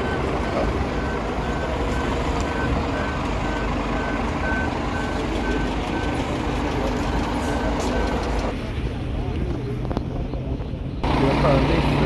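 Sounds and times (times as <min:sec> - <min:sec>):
reversing alarm beeping: 0:00.0 - 0:08.3
highway traffic rumble: 0:00.0 - 0:12.0.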